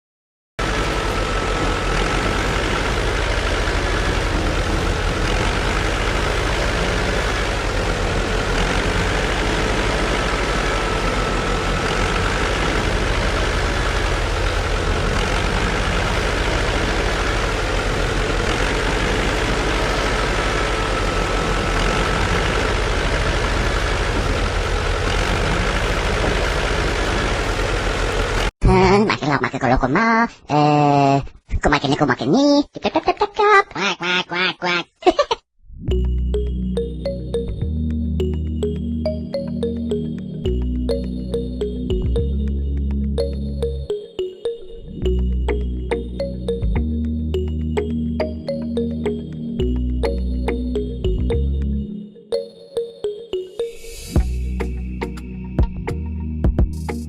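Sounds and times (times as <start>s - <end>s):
engine idling: 0.6s - 28.5s, 45.0s - 51.8s, 54.2s - 57.0s.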